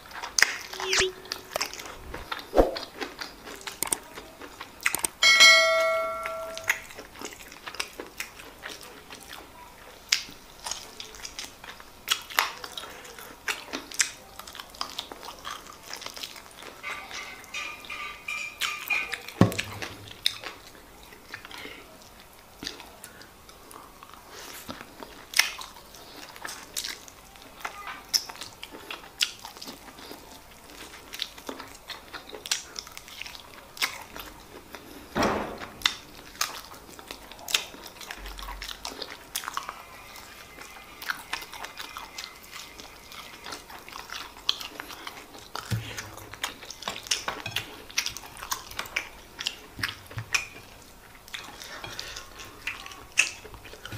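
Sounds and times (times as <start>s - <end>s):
chewing mouth clicks: 0.1s - 5.2s.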